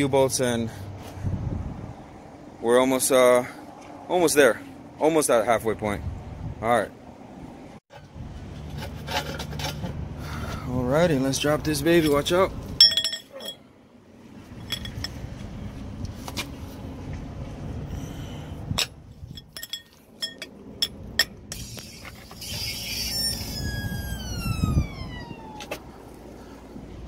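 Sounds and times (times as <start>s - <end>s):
metal clinks and knocks: 12.8s - 13.6s, 14.5s - 15.3s, 18.8s - 21.4s.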